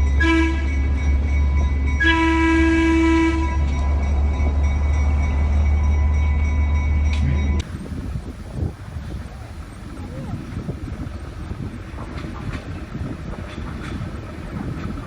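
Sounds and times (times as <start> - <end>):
low rumble of moving train: 0.0 - 15.0
train horn blasts: 0.2 - 0.8, 2.0 - 4.0.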